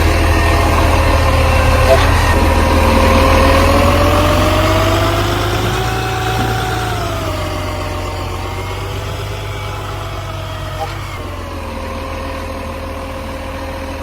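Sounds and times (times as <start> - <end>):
garbage truck engine running: 0.0 - 14.0
whining tone: 0.0 - 14.0.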